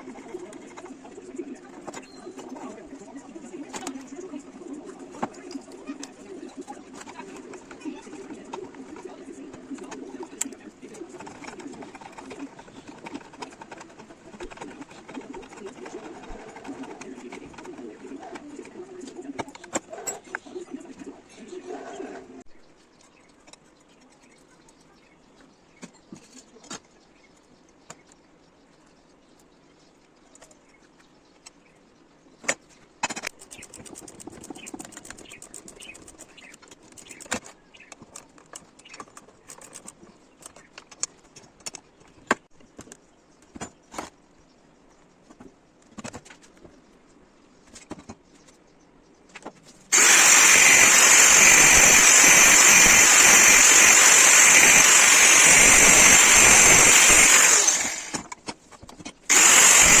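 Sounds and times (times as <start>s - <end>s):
power tool running: 49.9s - 58.4s, 59.3s - 60.0s.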